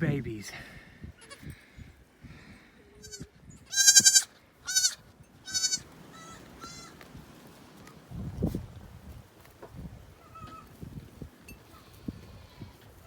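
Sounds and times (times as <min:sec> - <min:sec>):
goat kids bleating: 0:01.2 - 0:01.5, 0:03.0 - 0:07.0.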